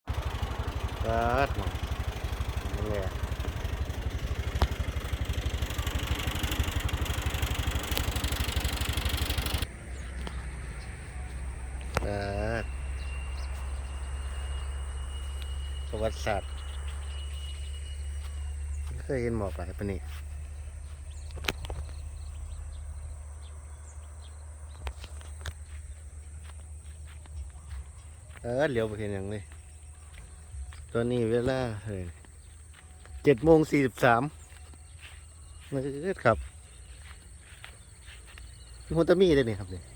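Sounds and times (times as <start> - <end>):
small vehicle engine running: 0.0 - 39.9
low rumble: 0.1 - 28.2
high insect drone: 0.3 - 39.9
faint bird chirps: 0.9 - 39.9
sharp clicks: 3.4 - 10.4, 21.2 - 22.2.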